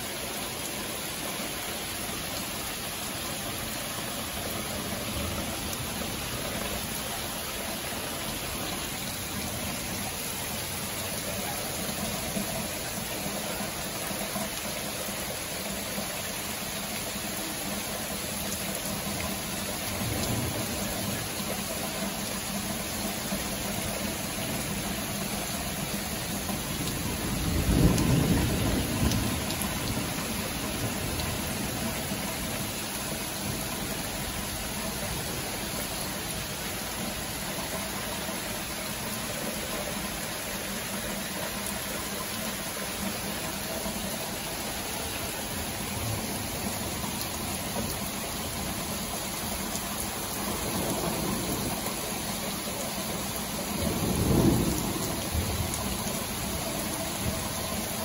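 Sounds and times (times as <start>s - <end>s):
steady rain: 0.0s - 58.0s
low rumble of thunder: 26.0s - 32.6s, 53.6s - 58.0s.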